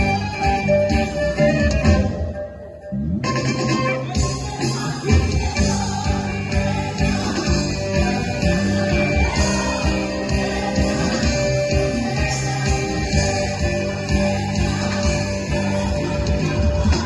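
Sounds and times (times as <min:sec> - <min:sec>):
live band playing: 0:00.0 - 0:17.0
woman singing: 0:04.1 - 0:17.0.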